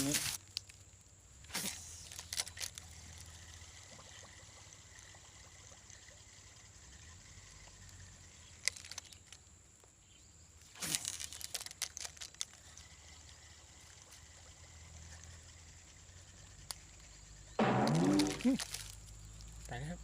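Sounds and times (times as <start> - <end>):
faint water trickle: 2.8 - 8.4.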